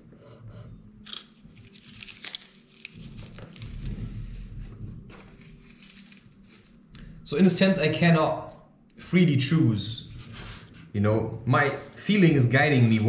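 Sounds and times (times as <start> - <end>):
garlic skin crinkling and tearing: 1.0 - 7.1.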